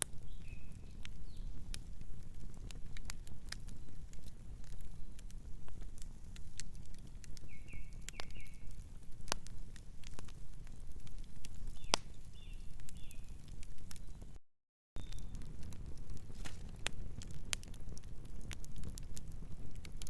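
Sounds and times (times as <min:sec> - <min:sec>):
wood fire crackling: 0:00.0 - 0:14.4, 0:15.0 - 0:20.0
faint bird chirps: 0:07.5 - 0:08.7, 0:15.0 - 0:15.3.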